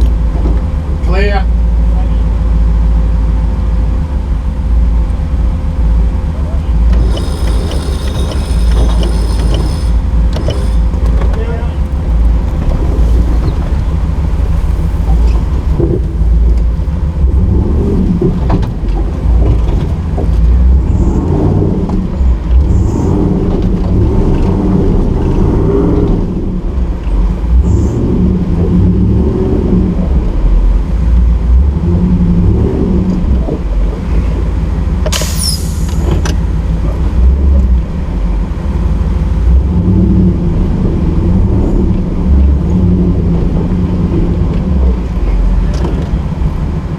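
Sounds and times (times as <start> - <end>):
truck engine revving: 0.0 - 46.9
sharp high-pitched squeal: 6.9 - 15.7, 35.1 - 37.0.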